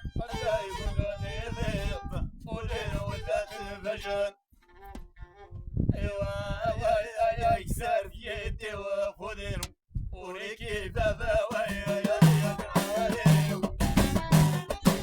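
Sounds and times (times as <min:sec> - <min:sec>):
man singing a folk song: 0:00.0 - 0:04.4, 0:06.0 - 0:15.0
plucked-string accompaniment: 0:11.6 - 0:15.0.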